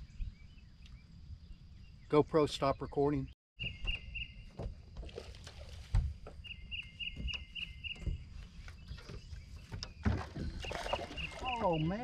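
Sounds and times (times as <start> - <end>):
bird chirping rapidly: 1.8 - 4.5
knocks and thumps on boat deck: 3.6 - 11.4.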